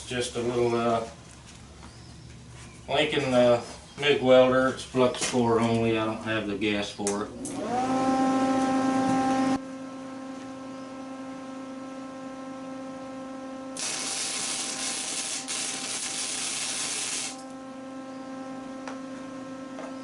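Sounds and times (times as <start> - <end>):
welder humming: 13.6 - 19.2
welding arc sizzling: 13.8 - 17.6.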